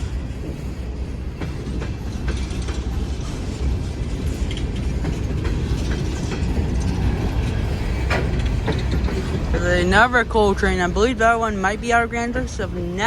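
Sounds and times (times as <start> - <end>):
wheels clicking and creaking: 0.0 - 12.7
train cars rumbling past: 0.0 - 13.0.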